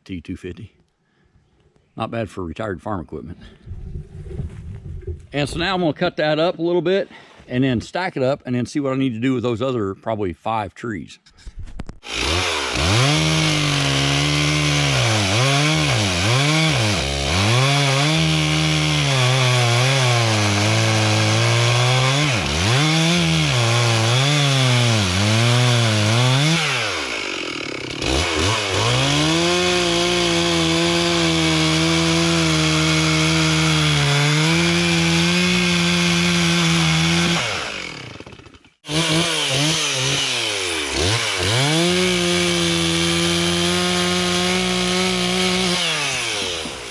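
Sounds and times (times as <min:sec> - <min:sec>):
chainsaw revving and cutting: 0:12.0 - 0:46.9.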